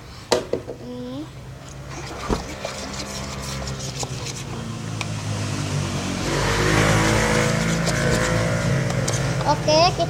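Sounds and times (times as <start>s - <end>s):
vehicle engine running: 3.2s - 10.0s.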